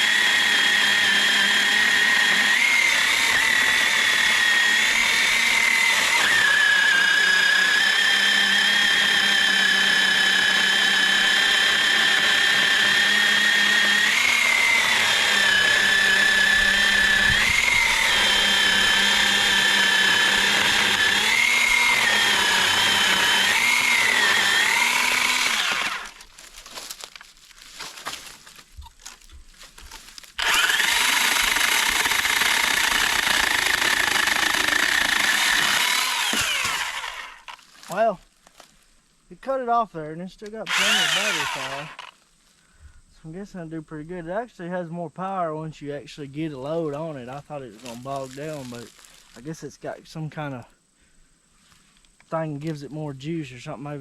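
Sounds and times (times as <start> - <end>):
electric chainsaw cutting log: 0.0 - 27.2, 29.8 - 38.0, 40.5 - 42.2.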